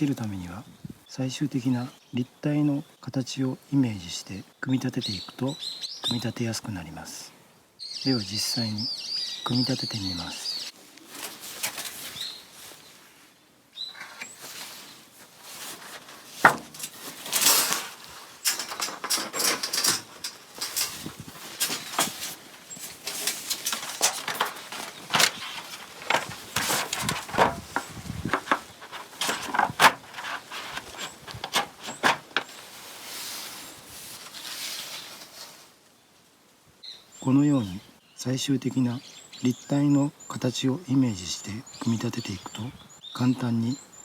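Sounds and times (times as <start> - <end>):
metal plates knocking and clinking: 18.5 - 22.3, 23.0 - 32.5.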